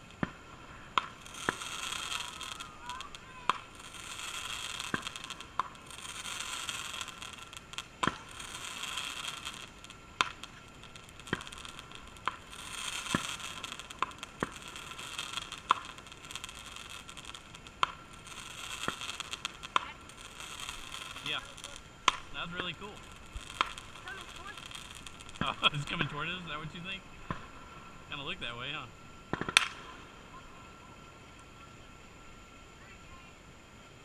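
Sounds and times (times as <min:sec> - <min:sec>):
fireworks popping: 0:00.0 - 0:31.6
fireworks hissing: 0:00.0 - 0:34.0.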